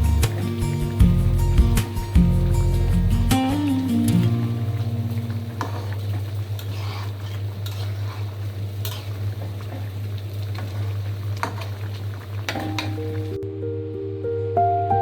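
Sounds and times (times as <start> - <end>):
utensil scraping in a pan: 5.2 - 13.0.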